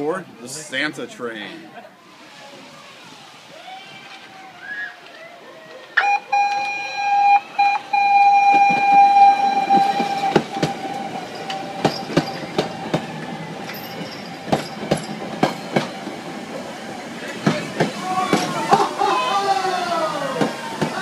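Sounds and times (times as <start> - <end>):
train wheels clacking over rail joints: 8.5 - 18.9.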